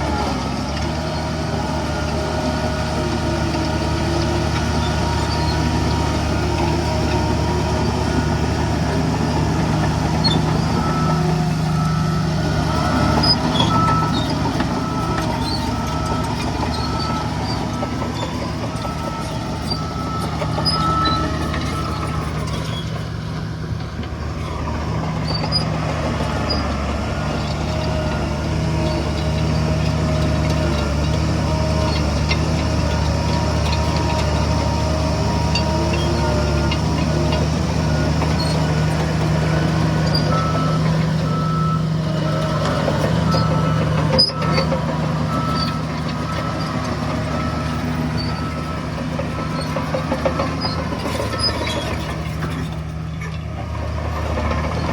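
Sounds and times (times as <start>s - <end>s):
diesel machinery running: 0.0s - 54.9s
reversing alarm beeping: 1.6s - 52.2s.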